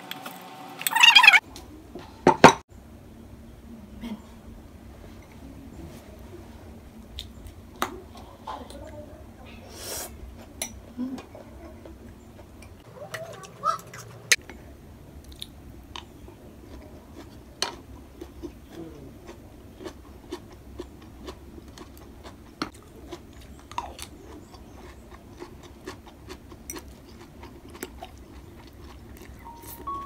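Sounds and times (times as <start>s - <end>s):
crunchy chewing of cabbage: 15.3s - 30.0s.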